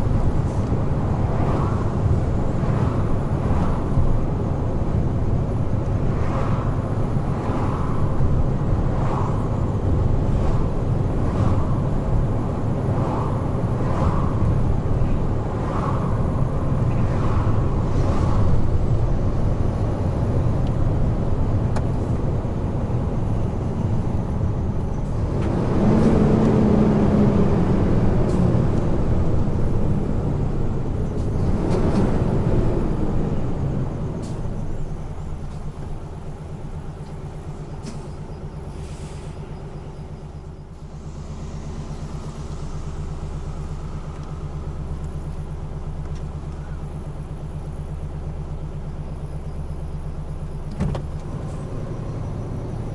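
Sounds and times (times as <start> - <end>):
heavy truck engine and tyre rumble: 0.0 - 52.9
low droning tone: 39.8 - 47.0.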